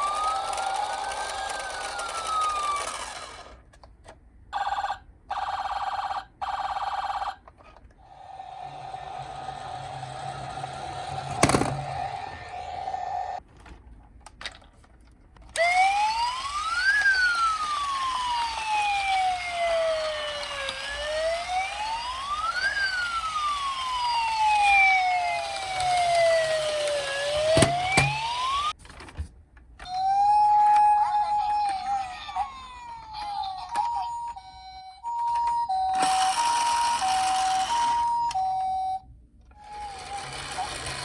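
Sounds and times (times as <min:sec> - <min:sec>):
police siren wailing: 0:00.0 - 0:03.4, 0:08.1 - 0:13.4, 0:15.6 - 0:28.8, 0:29.9 - 0:34.4.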